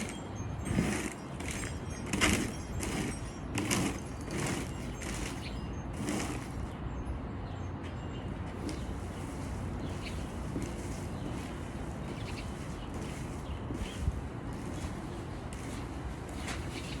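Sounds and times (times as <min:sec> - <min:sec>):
rhythmic scraping strokes: 0:00.0 - 0:06.7, 0:08.6 - 0:17.0.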